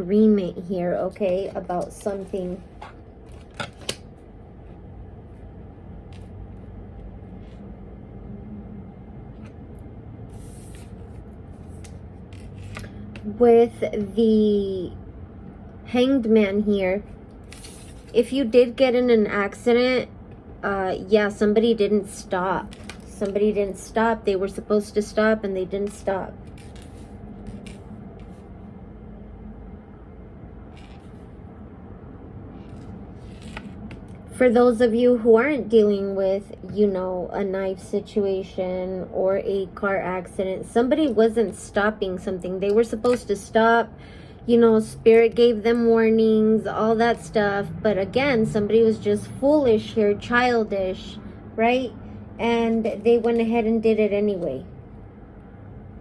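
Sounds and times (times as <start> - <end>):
faint hum: 0.0 - 56.0
low background rumble: 0.0 - 56.0.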